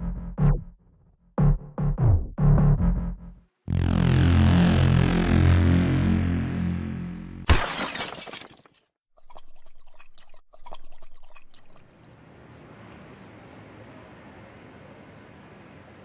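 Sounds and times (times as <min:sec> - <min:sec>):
intro music: 0:00.0 - 0:00.8, 0:01.4 - 0:07.5
sudden crash: 0:01.4 - 0:07.9
faint outdoor background: 0:09.2 - 0:16.0.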